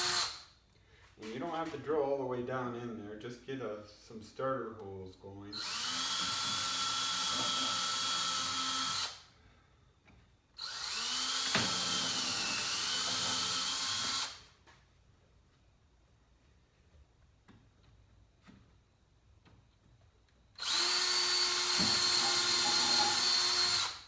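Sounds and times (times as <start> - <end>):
electric drill boring wood: 0.0 - 0.4, 5.6 - 9.2, 10.6 - 14.4, 20.6 - 24.0.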